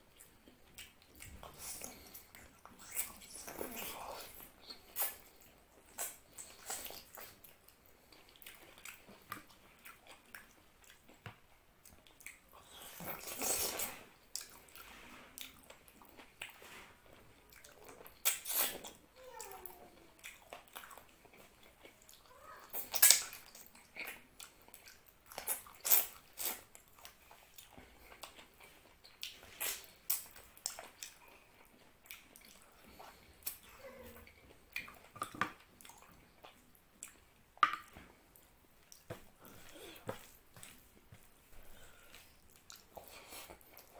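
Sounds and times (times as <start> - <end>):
wet chewing mouth clicks: 0.1 - 14.8, 20.2 - 38.0, 42.1 - 43.9.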